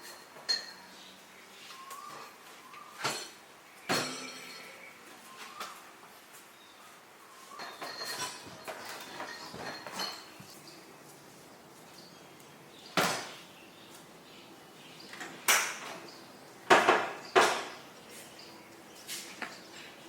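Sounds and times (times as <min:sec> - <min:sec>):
hard objects knocking and clattering: 0:07.6 - 0:10.6, 0:16.7 - 0:17.8.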